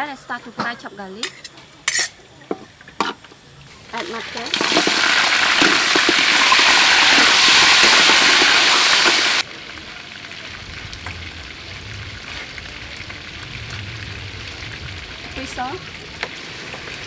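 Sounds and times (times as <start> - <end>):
metal ladle scraping wok: 1.2 - 2.2
food sizzling in hot oil: 3.7 - 17.0
steady hiss: 6.9 - 17.0.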